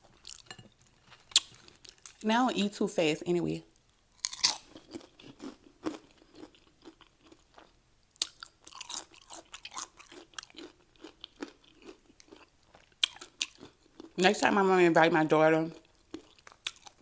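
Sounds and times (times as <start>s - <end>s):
chewing crunchy chips: 0.1s - 2.2s, 4.2s - 14.2s, 15.7s - 17.0s.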